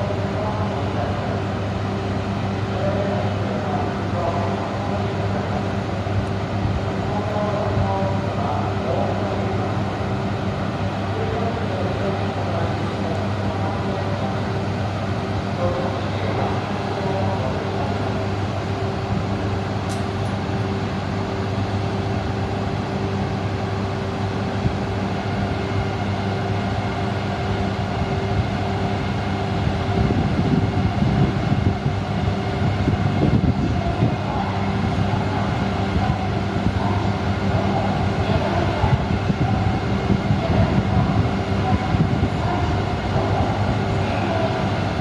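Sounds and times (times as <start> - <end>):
train electrical hum: 0.0 - 45.0.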